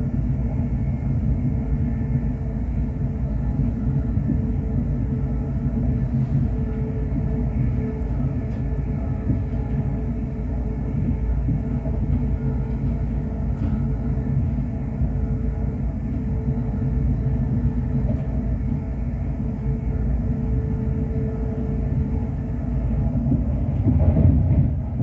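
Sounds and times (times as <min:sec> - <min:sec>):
faint constant hum: 0:00.0 - 0:25.0
train wheels rumbling on track: 0:00.0 - 0:25.0.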